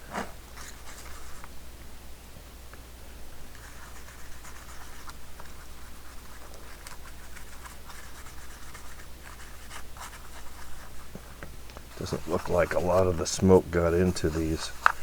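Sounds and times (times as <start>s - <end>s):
toothbrush scrubbing: 3.6s - 11.1s, 11.9s - 15.0s.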